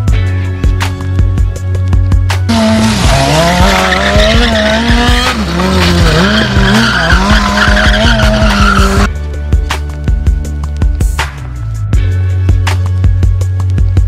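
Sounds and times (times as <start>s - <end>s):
background music with beat: 0.0s - 14.0s
car engine wavering: 2.5s - 9.1s
tyres screeching: 2.5s - 9.1s.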